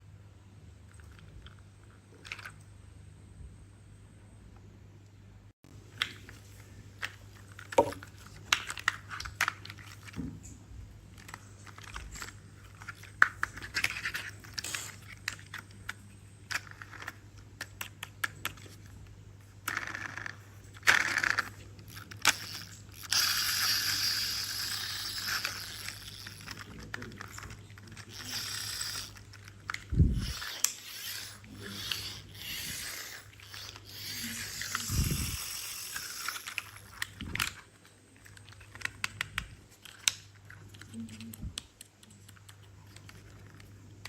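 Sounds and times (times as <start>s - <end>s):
plastic toy pieces clicking: 11.1s - 18.9s, 19.6s - 43.7s.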